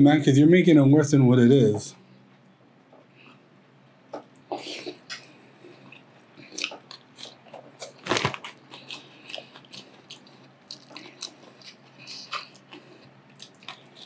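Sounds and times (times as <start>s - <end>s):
person chewing: 4.1s - 14.0s.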